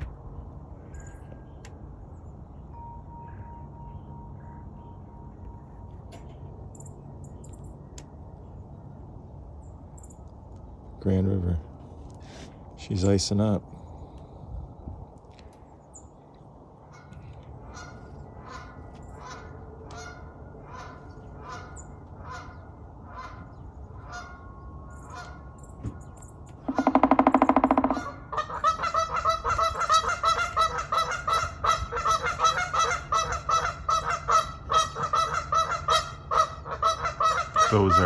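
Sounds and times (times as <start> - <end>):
geese honking: 16.9 - 25.5, 26.6 - 38.0.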